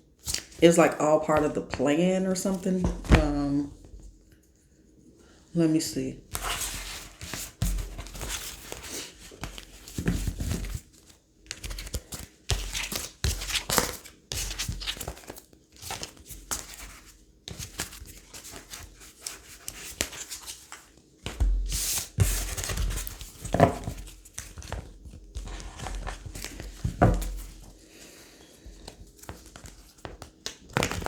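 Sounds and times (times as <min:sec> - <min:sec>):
cards being shuffled: 0:06.3 - 0:27.7, 0:28.7 - 0:31.0.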